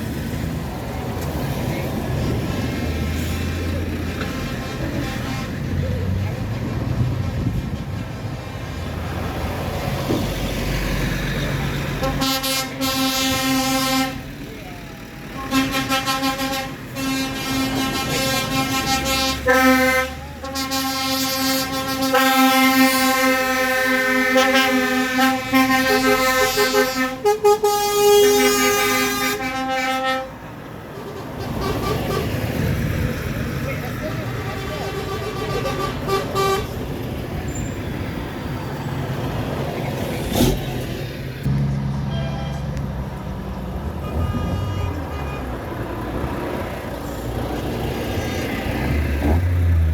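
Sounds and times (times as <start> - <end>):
low engine rumble: 0.0 - 49.9
vehicle horn blasts: 12.0 - 14.2, 15.4 - 30.4, 34.4 - 36.8, 44.0 - 45.6.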